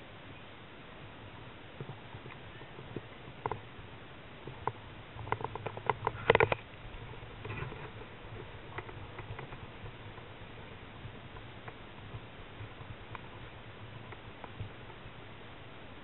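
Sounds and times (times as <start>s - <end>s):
small sharp clicks and knocks: 4.4s - 10.3s.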